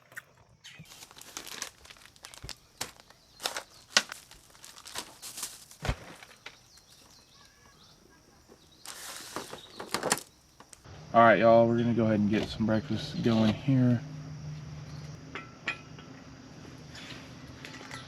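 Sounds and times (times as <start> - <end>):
foil snack bag crinkling: 0.8 - 7.6, 8.8 - 10.8.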